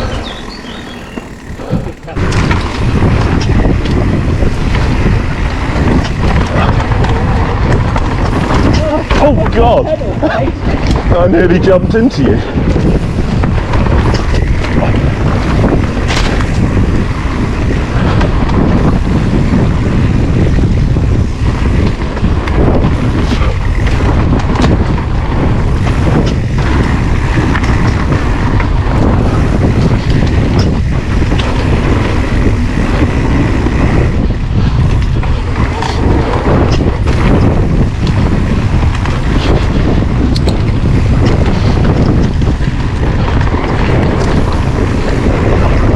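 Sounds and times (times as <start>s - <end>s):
bike knocks and rattles: 0.0s - 11.4s, 12.4s - 45.9s
low rumble: 0.0s - 11.5s
wind buffeting microphone: 0.0s - 45.9s.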